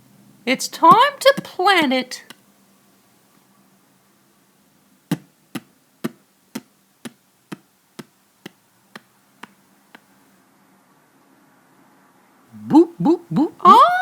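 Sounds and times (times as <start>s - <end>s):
sharp taps: 0.9s - 1.6s, 5.1s - 10.1s.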